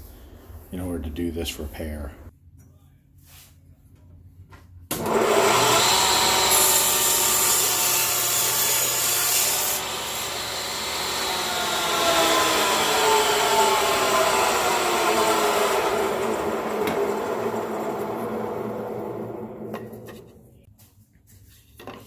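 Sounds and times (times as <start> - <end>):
power saw cutting wood: 4.9 - 20.6.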